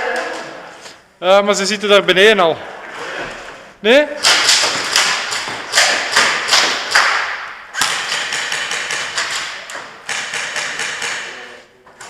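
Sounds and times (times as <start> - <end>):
airsoft guns firing: 4.2 - 11.5.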